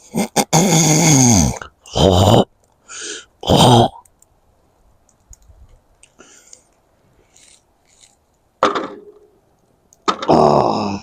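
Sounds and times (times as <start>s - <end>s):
faint clicks: 4.0s - 4.4s, 5.0s - 8.4s.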